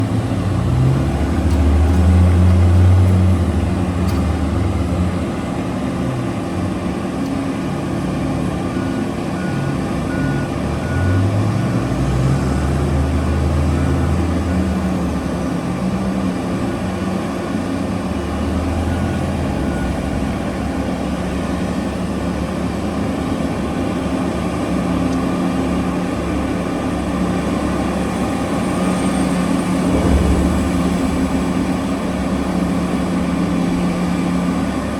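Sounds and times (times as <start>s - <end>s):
heavy diesel engines under load: 0.0s - 34.9s
reversing alarm beeping: 8.7s - 15.2s, 18.4s - 21.2s.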